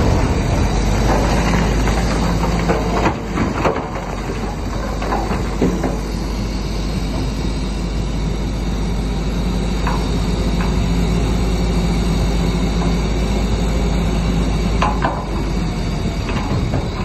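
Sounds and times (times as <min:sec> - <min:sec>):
steel tracks clanking on stone: 0:00.0 - 0:06.2
bulldozer diesel engine running: 0:00.0 - 0:17.0.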